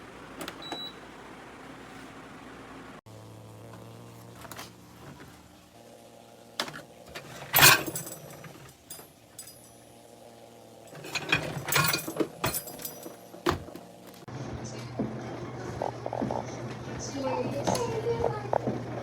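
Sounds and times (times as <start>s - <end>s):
dishwasher humming: 0.0s - 19.0s
knocks and rattles: 11.0s - 14.0s.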